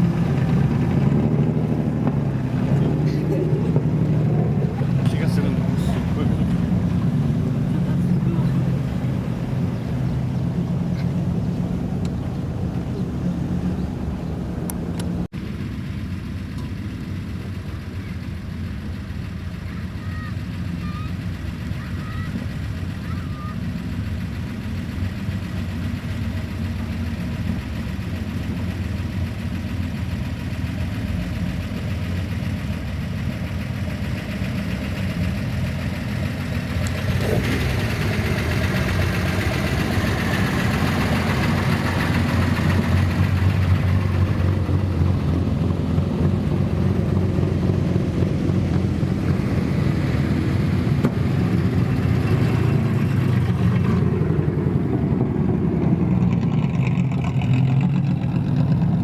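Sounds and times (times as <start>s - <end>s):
old car engines running: 0.0s - 59.0s.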